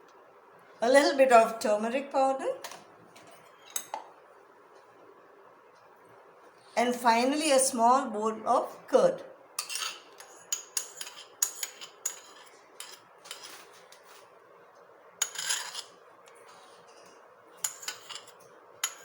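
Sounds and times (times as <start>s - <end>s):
spoon scraping a bowl: 9.6s - 14.3s, 15.2s - 19.0s.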